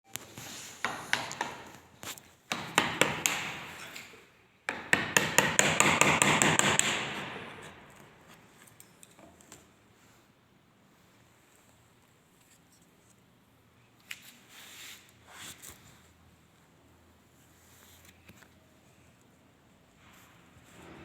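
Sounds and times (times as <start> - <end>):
hammer strikes: 0.8 - 1.8, 2.5 - 3.9, 4.7 - 7.9.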